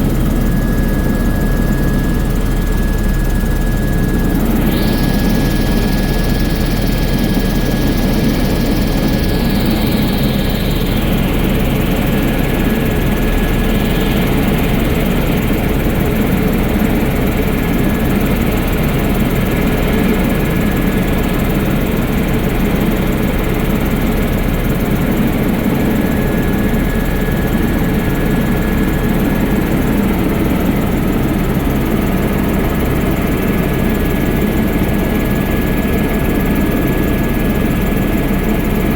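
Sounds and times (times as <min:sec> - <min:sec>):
high whine: 0:00.0 - 0:15.8
helicopter engine and rotor drone: 0:00.0 - 0:38.9.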